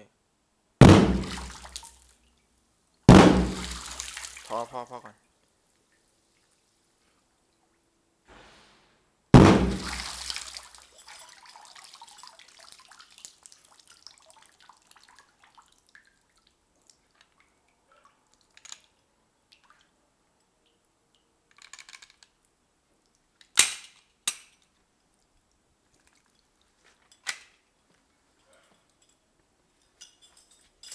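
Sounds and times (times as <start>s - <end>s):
muffled underwater gunshot: 0.8s - 1.5s, 3.1s - 3.9s, 9.4s - 10.2s
sharp knocks: 0.8s - 1.5s, 3.1s - 3.8s, 9.4s - 10.0s
water splashing and dripping: 0.8s - 2.5s, 3.1s - 6.9s, 9.4s - 20.0s, 24.3s - 27.7s.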